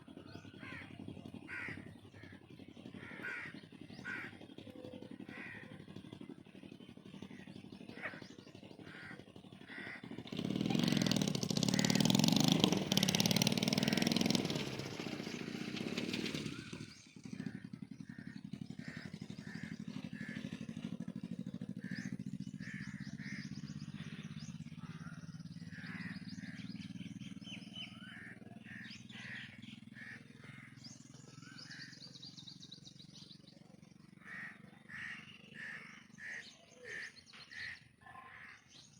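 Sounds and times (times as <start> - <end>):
low engine drone: 0.0 - 37.7
birds calling: 0.0 - 38.9
vehicle passing loudly: 10.1 - 30.7.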